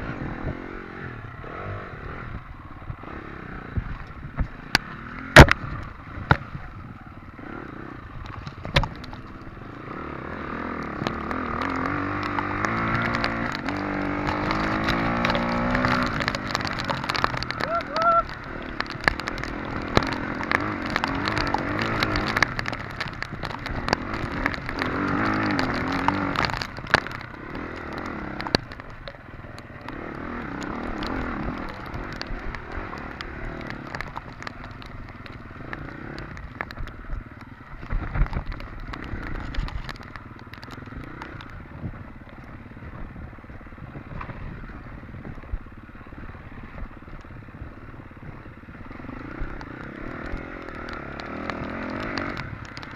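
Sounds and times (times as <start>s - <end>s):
dirt bike engine revving: 0.0s - 36.6s, 47.6s - 52.7s
bike clattering and knocking: 8.1s - 45.7s.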